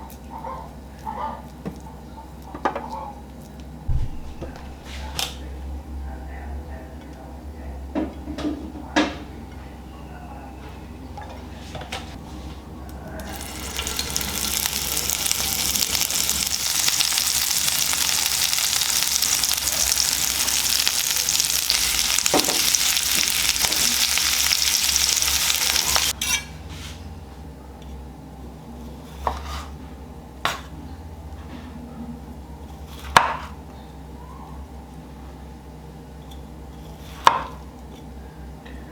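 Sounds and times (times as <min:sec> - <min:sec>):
food sizzling in a frying pan: 0:13.2 - 0:26.2.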